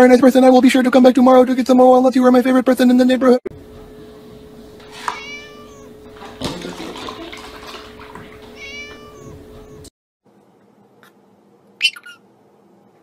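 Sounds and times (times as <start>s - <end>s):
steady low hum: 0.0s - 13.0s
cat meowing: 4.9s - 6.0s, 8.5s - 9.8s, 11.8s - 12.2s.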